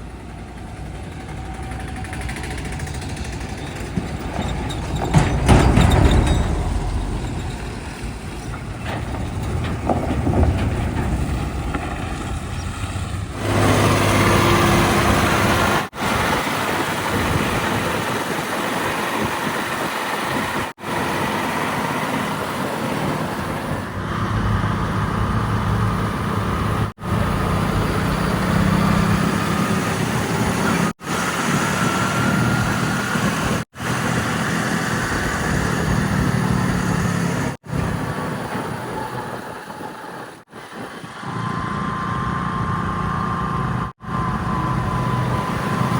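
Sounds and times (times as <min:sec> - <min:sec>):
heavy diesel machinery engines: 0:00.0 - 0:45.9.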